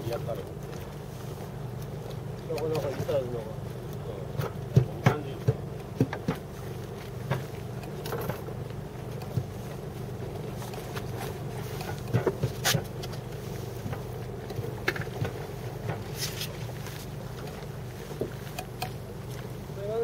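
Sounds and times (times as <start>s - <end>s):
boat engine humming: 0.0s - 20.0s
sharp clicks and knocks: 4.3s - 16.6s, 17.4s - 19.5s.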